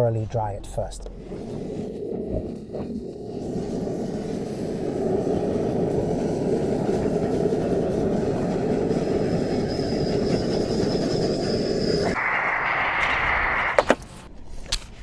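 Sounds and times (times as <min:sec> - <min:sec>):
gas torch burner roaring: 0:01.0 - 0:14.3
faint high whistle: 0:09.2 - 0:14.2.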